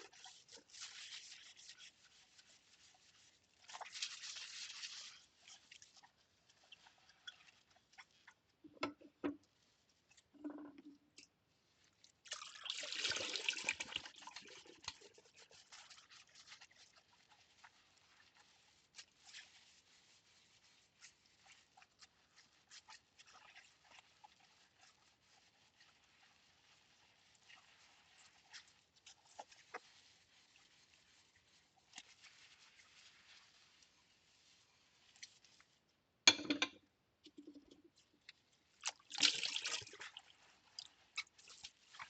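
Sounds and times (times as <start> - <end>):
ceramic bowls knocking: 36.3 - 36.8.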